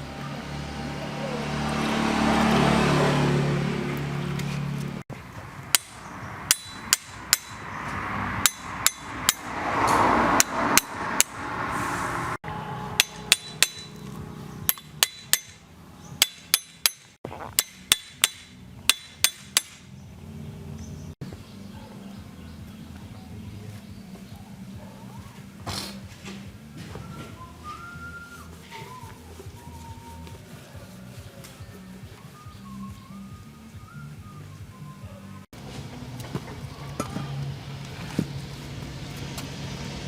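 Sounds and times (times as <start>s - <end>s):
hammer striking metal: 5.7s - 11.5s, 12.4s - 19.9s.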